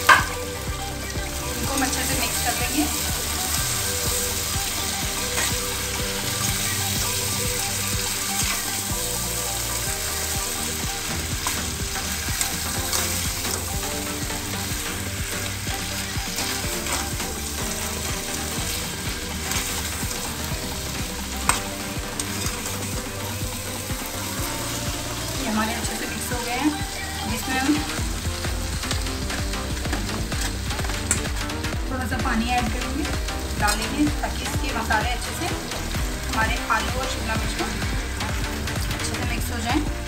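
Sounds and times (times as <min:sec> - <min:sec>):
food sizzling in oil: 0:00.0 - 0:40.0
spatula knocking on pan: 0:00.1 - 0:00.4.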